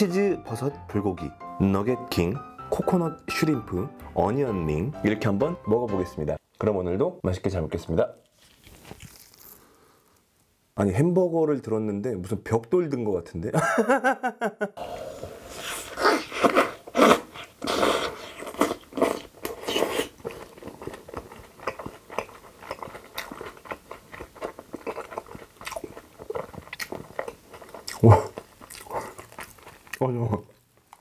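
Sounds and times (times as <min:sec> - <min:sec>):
biting into burger: 0:15.6 - 0:31.0
wet chewing and mouth smacking: 0:16.0 - 0:31.0.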